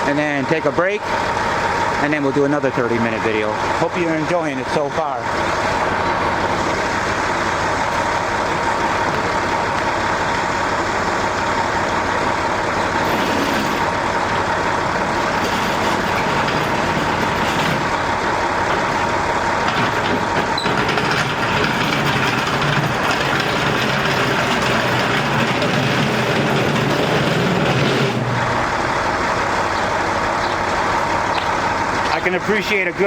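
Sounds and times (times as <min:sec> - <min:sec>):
mechanical drone: 0:12.9 - 0:30.0.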